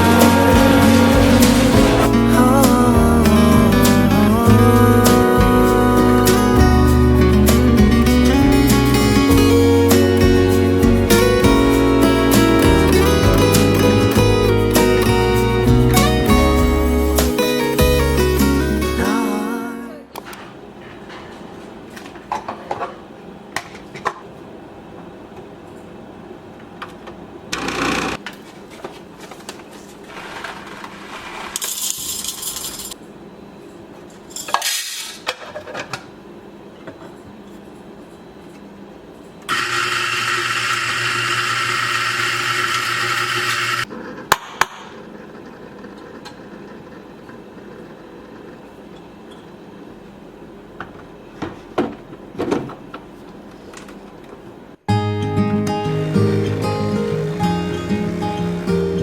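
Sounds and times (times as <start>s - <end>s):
small appliance motor whirring: 39.5s - 43.9s.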